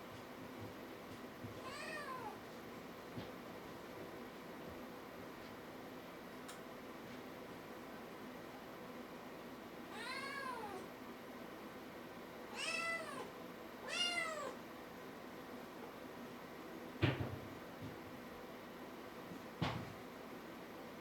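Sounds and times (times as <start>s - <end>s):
kitten meowing: 12.6s - 13.3s, 13.9s - 14.6s.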